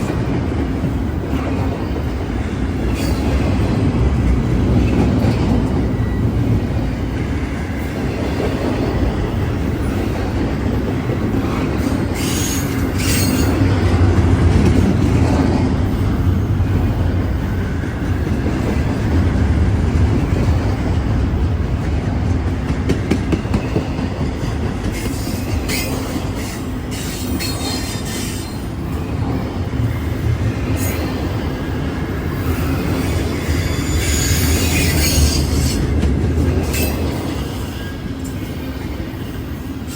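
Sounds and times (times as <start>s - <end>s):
train rumbling: 0.0s - 39.9s
wheel squeal: 12.2s - 13.6s, 32.6s - 35.9s.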